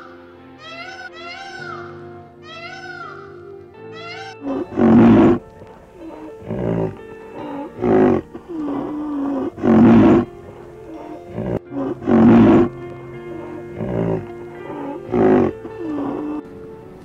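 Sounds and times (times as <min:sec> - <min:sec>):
background music: 0:00.0 - 0:17.0
large animal deep calls: 0:04.4 - 0:16.4.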